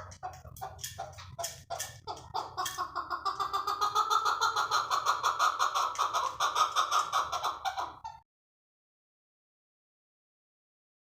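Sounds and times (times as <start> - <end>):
partridge clucking calls: 0.0 - 8.2.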